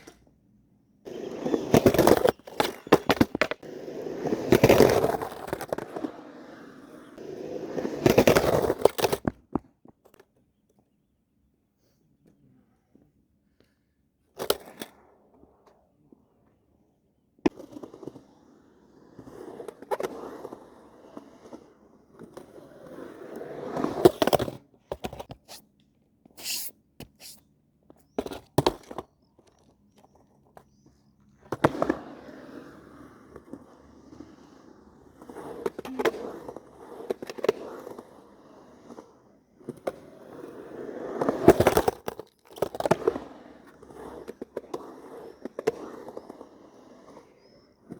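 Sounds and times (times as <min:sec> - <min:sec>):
skateboard wheels rolling on pavement: 0:00.0 - 0:10.2, 0:14.4 - 0:25.7, 0:26.3 - 0:47.9
skateboard deck clacking on ground: 0:01.1 - 0:03.6.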